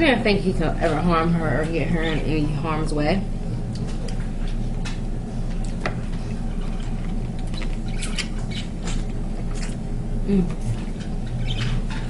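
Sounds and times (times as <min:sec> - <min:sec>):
steady low hum: 0:00.0 - 0:12.0
chewing and mouth smacks: 0:03.7 - 0:09.9.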